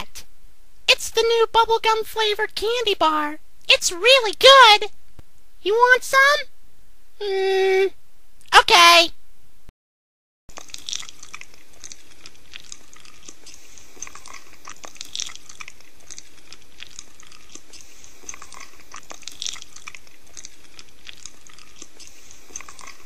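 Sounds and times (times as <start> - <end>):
crunchy chewing of candy bar: 10.5 - 23.0.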